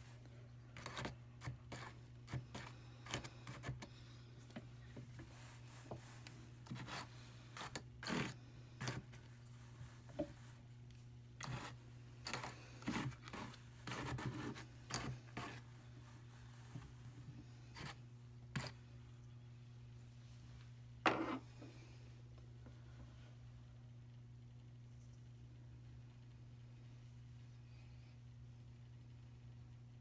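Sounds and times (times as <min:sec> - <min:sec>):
wool scratching on wire carder: 0:00.8 - 0:03.9, 0:05.4 - 0:09.2, 0:11.4 - 0:15.7, 0:17.7 - 0:18.8.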